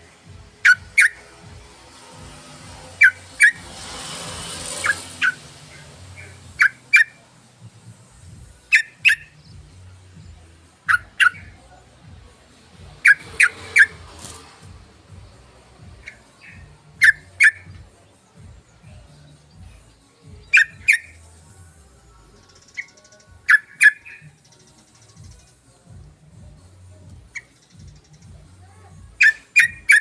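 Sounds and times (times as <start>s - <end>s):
bird calling: 0.6s - 1.3s, 2.8s - 3.7s, 20.5s - 21.2s, 29.2s - 30.0s.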